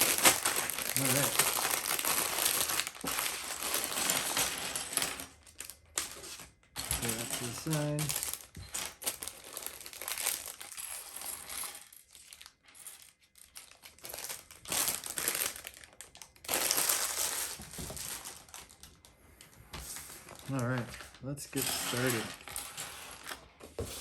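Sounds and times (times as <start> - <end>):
plastic bags crinkling: 0.0 - 24.0.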